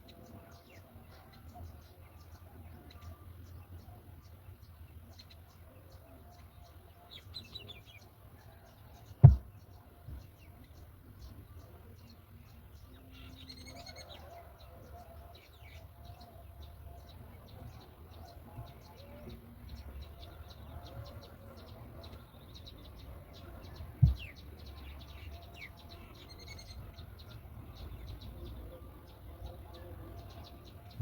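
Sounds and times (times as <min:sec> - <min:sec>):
birds chirping: 0:00.0 - 0:31.0
loud thump: 0:09.2 - 0:09.5.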